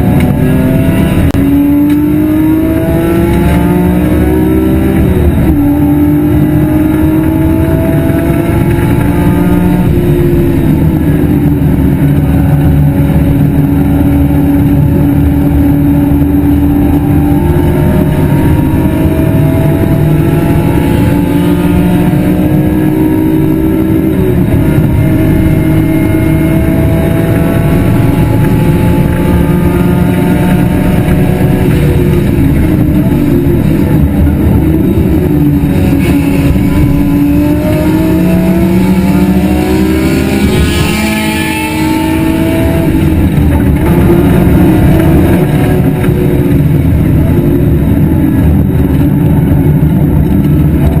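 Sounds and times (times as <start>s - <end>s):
car engine revving hard: 0.0s - 51.0s.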